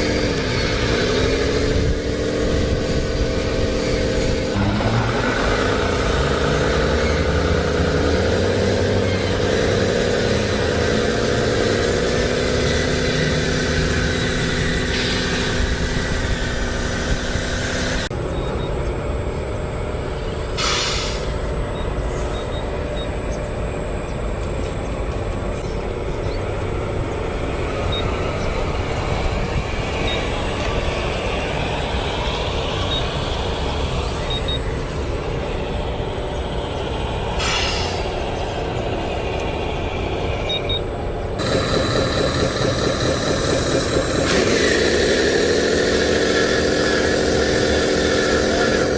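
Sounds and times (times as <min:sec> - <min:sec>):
toy vehicle engine drone: 0:00.0 - 0:20.6, 0:21.2 - 0:48.9
air brake hiss: 0:20.6 - 0:21.4, 0:37.4 - 0:38.2.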